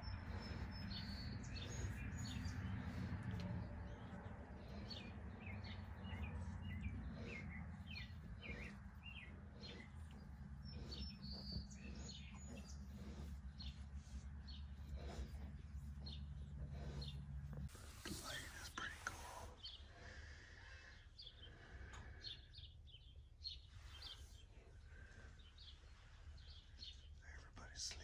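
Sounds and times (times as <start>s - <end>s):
low steady rumble: 0.0s - 18.9s
birds chirping and singing: 0.0s - 28.0s.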